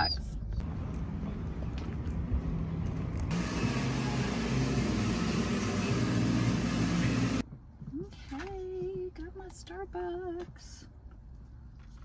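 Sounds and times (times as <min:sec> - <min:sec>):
road noise: 0:00.6 - 0:07.4.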